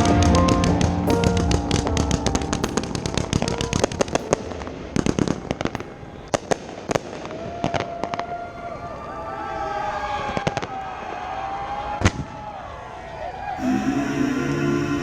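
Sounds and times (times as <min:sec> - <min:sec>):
fireworks reports and crackles: 0:00.0 - 0:09.1.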